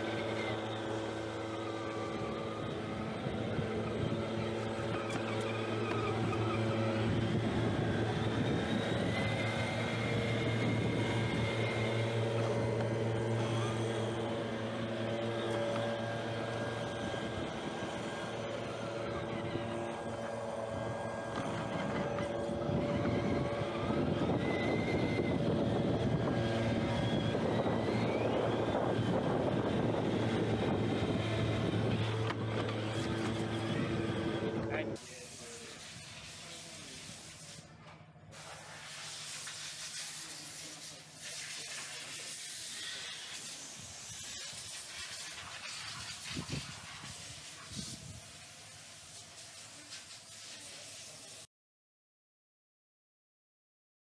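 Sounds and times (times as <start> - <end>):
short rising whines: 0.0 - 40.6
steady motor hum: 0.0 - 49.9.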